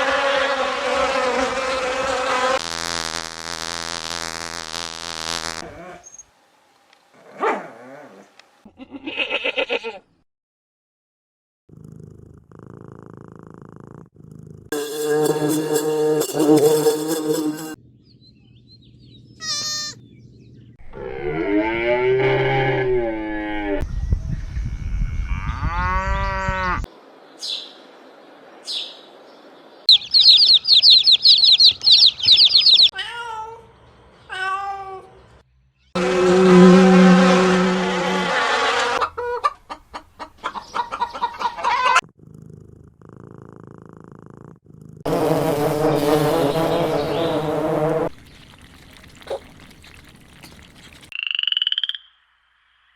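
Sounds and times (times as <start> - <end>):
cows mooing: 20.9 - 23.8, 36.0 - 39.0
quick high chirps: 29.9 - 32.9.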